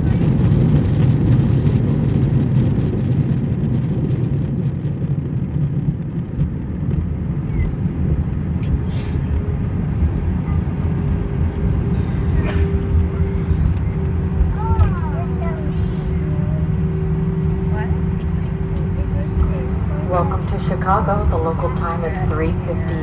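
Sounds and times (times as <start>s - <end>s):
low rumble of airliner engines: 0.0s - 23.0s
steady hum: 5.9s - 23.0s.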